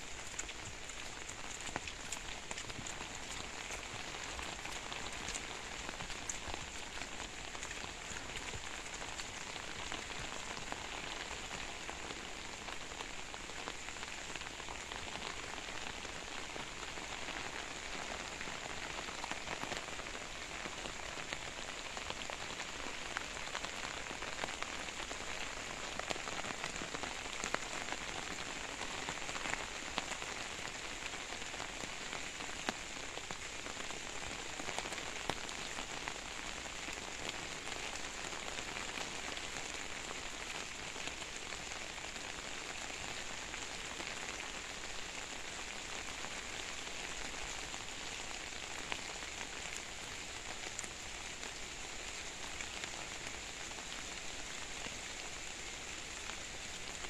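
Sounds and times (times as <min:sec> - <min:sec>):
rain falling on foliage: 0:00.0 - 0:57.0.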